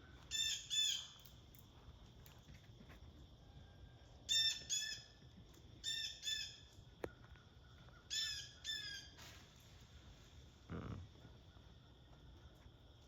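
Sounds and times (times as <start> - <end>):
blue jay harsh calls: 0.3 - 1.1, 8.1 - 9.1.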